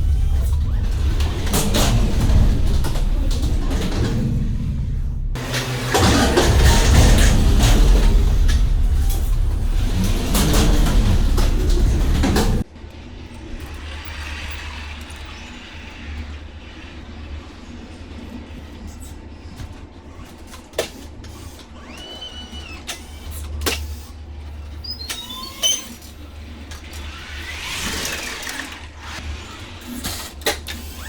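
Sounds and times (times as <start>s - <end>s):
low engine hum: 0.0s - 14.5s.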